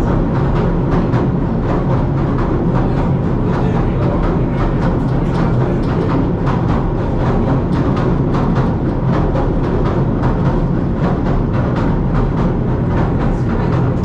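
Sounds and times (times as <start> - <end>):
train rumble: 0.0 - 14.0
wheel clacks and knocks: 0.0 - 14.0.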